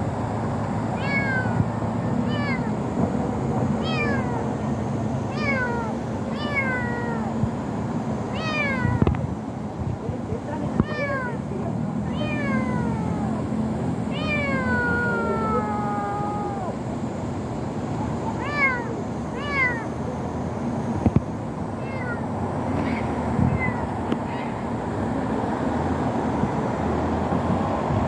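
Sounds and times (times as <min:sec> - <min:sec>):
kitten meowing: 0:01.0 - 0:02.8, 0:03.8 - 0:04.5, 0:05.3 - 0:07.4, 0:08.3 - 0:09.1, 0:10.7 - 0:13.4, 0:14.1 - 0:16.8, 0:18.4 - 0:19.9, 0:21.8 - 0:24.6.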